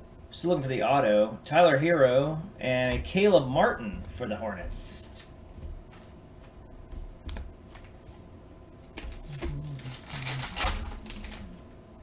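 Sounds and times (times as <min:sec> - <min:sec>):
cards clicking and rustling: 0:07.3 - 0:08.1, 0:09.0 - 0:11.6.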